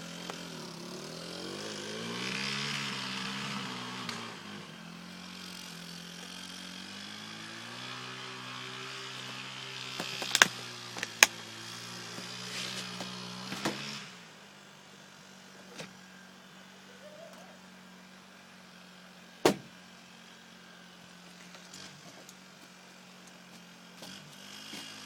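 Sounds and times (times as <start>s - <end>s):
sharp knocks: 19.4s - 19.7s.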